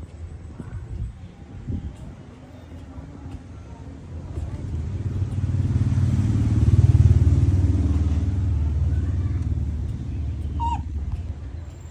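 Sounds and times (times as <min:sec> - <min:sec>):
vehicle engine passing by: 0:04.3 - 0:11.9.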